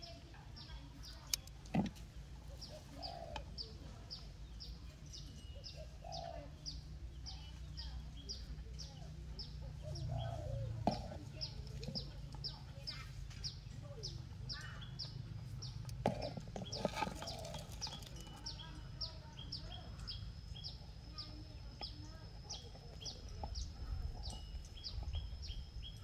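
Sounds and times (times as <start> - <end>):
thin steady high tone: 17.1 - 26.0.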